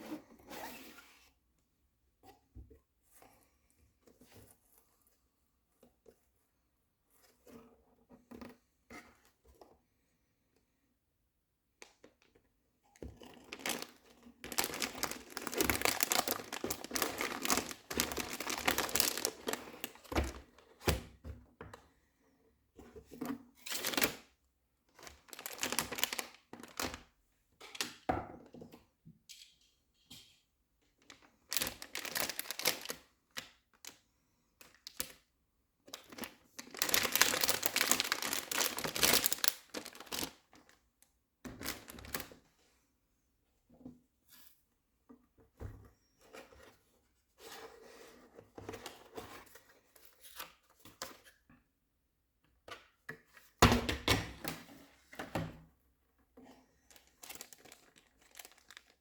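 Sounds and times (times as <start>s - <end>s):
plastic packaging crinkling: 13.4s - 20.6s, 23.7s - 24.2s, 25.0s - 27.0s, 31.1s - 33.4s, 36.0s - 40.4s, 41.6s - 42.3s, 56.9s - 59.0s.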